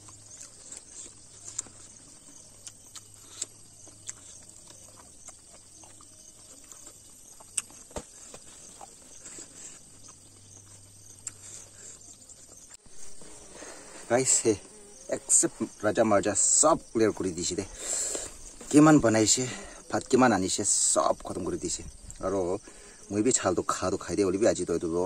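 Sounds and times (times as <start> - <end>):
chewing and lip smacks: 0.0 - 12.8
high insect drone: 0.0 - 25.0.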